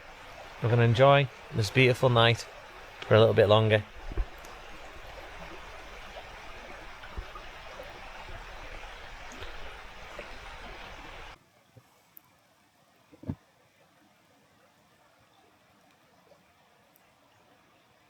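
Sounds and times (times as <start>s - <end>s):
river water rushing: 0.0s - 11.4s
faint ticks: 2.2s - 11.4s.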